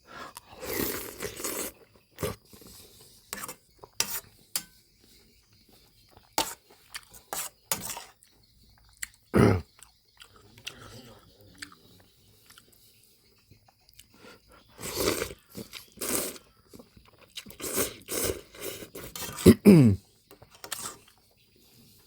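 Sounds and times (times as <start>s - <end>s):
chewing: 5.5s - 7.2s, 8.2s - 19.6s.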